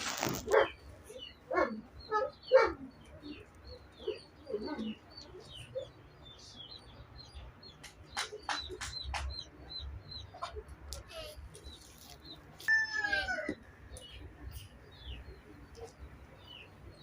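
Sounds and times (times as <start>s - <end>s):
small birds chirping: 0.0s - 17.0s
dog yipping and whining: 12.7s - 13.6s.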